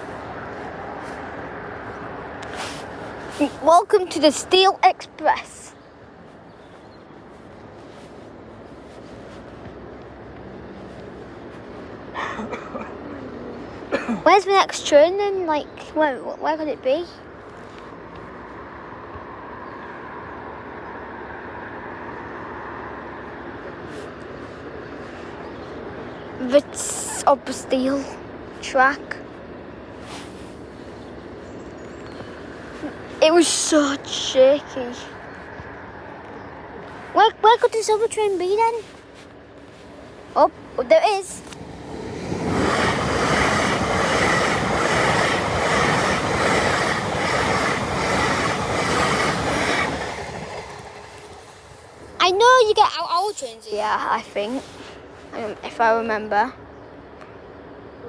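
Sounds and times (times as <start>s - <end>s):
train wheels on track: 23.2s - 55.9s
train passing at speed: 40.2s - 57.9s.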